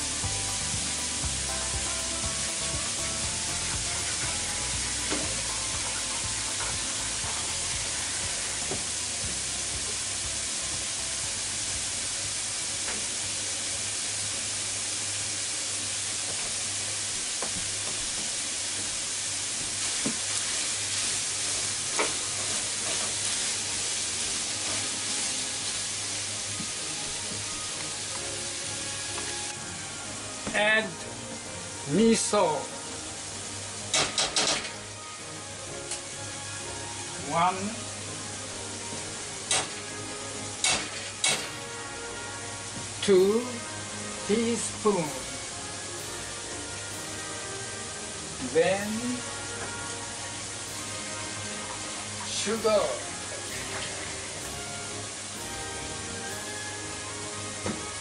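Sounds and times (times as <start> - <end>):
vegetables sizzling in a frying pan: 0.0 - 58.0.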